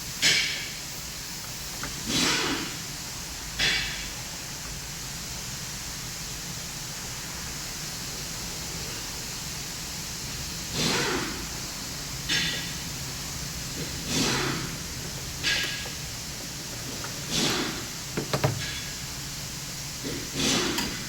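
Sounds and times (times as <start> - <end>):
steady background noise: 0.0 - 21.0
short hissing burst: 10.7 - 19.2.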